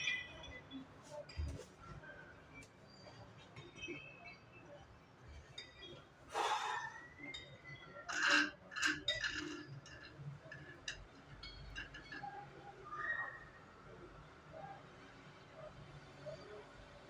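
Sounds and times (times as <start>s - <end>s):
man breathing heavily: 6.3s - 7.0s.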